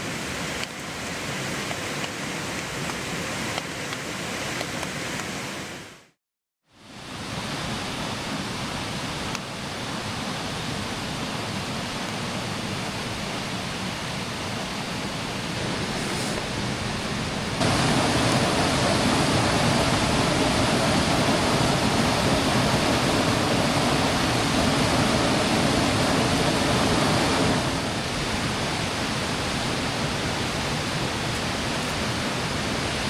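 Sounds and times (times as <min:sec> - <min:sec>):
creek water rushing: 0:00.0 - 0:06.1, 0:06.8 - 0:33.0.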